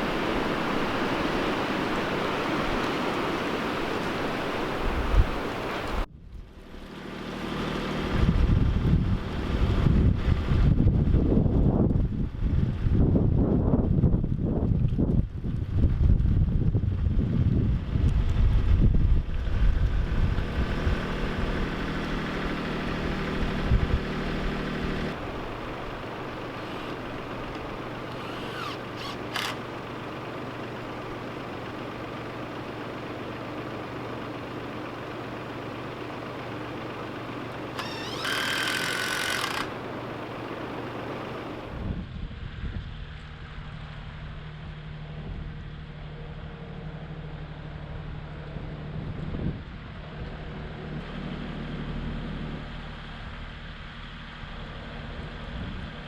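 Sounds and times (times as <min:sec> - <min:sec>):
engine humming: 0:00.0 - 0:56.0.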